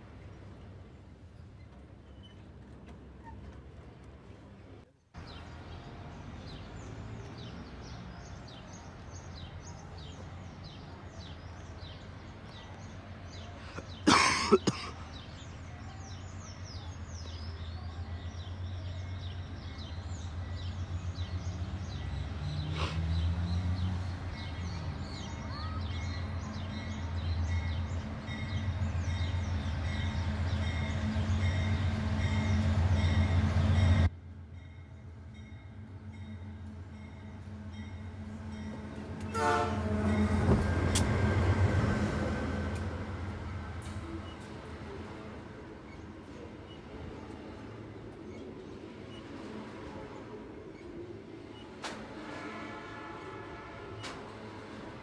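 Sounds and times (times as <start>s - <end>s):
freight train diesel rumble: 0.0s - 55.0s
birds chirping: 5.2s - 34.0s.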